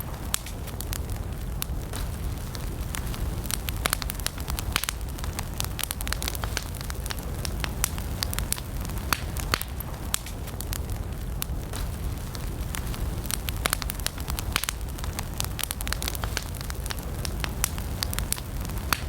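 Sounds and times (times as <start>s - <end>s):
campfire crackling: 0.0s - 19.0s.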